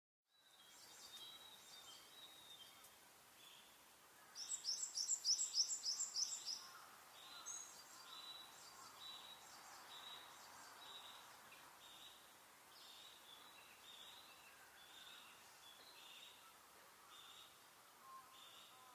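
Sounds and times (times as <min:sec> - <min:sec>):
birds chirping: 0:00.4 - 0:18.9.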